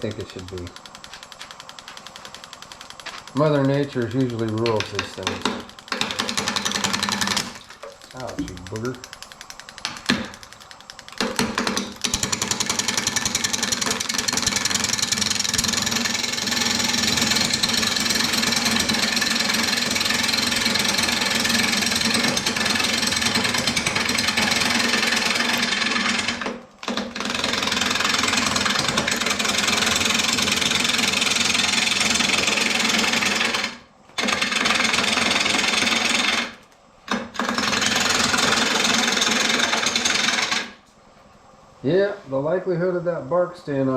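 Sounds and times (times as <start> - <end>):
lathe tool cutting wood: 11.8 - 36.5, 37.4 - 40.7.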